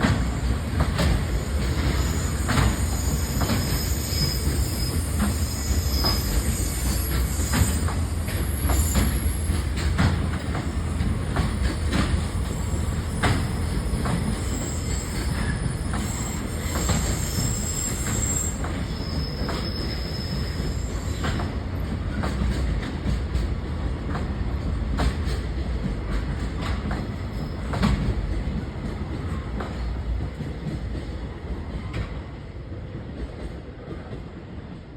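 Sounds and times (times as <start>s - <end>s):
freight train rumbling past: 0.0s - 34.9s
high-pitched wheel squeals: 1.8s - 9.5s, 12.5s - 21.3s.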